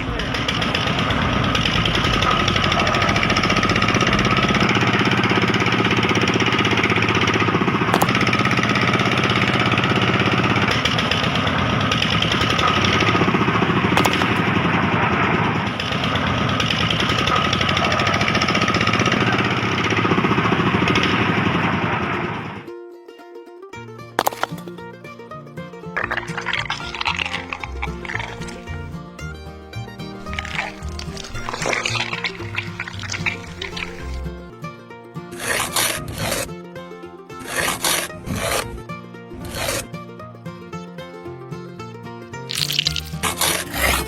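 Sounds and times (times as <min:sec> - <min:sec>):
small electric motor rattling: 0:00.0 - 0:22.6, 0:26.0 - 0:28.8, 0:30.2 - 0:34.5, 0:35.4 - 0:36.5, 0:37.4 - 0:38.8, 0:39.4 - 0:39.9, 0:42.5 - 0:44.0.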